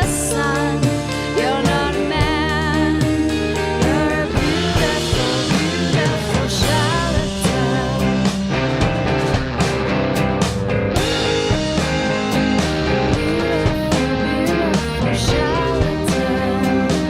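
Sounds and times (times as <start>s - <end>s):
woman singing: 0.0s - 8.4s, 13.0s - 17.0s
rock band playing: 0.0s - 17.0s.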